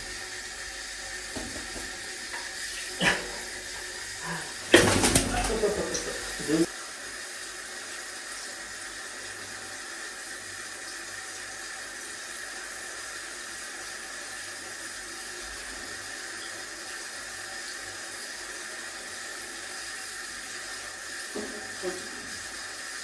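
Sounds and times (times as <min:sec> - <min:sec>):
water spraying: 0:01.2 - 0:06.7.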